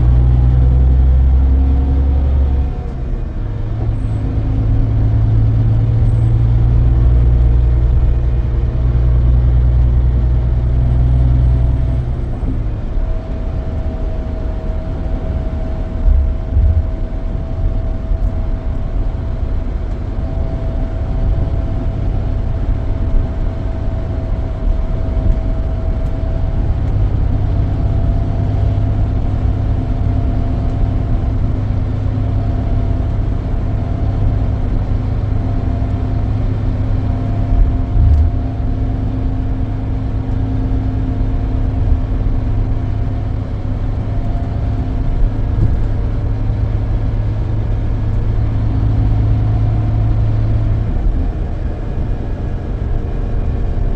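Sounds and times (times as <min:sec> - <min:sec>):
coach engine and road rumble: 0:00.0 - 0:53.9
lower tone: 0:00.0 - 0:53.9
short low thumps: 0:13.3 - 0:18.5.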